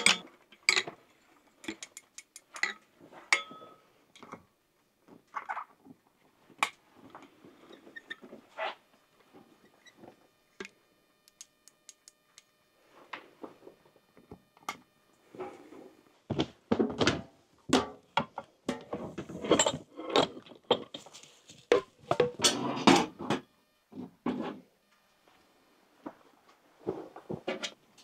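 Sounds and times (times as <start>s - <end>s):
objects knocking and clattering: 0.0s - 4.5s, 16.3s - 23.5s
rustling: 20.8s - 22.1s.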